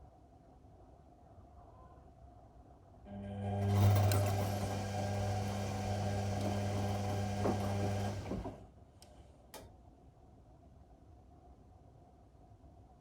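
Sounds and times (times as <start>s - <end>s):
washing machine humming: 3.1s - 8.7s.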